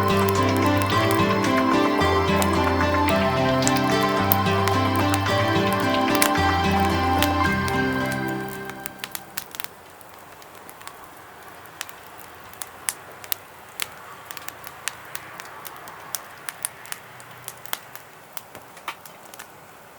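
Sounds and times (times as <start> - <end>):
background music: 0.0 - 9.6
small fire crackling: 0.0 - 19.9.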